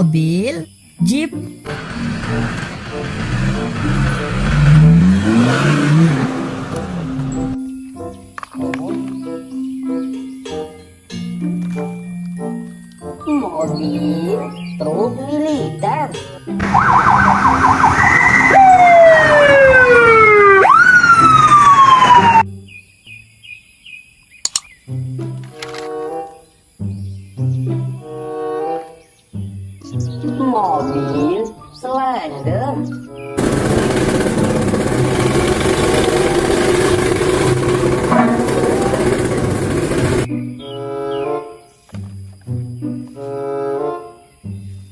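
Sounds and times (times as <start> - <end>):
road roller engine running: 1.6 - 7.6, 16.6 - 22.4, 33.4 - 40.3
siren yelping and wailing: 16.6 - 22.4
brass band music: 35.6 - 41.6.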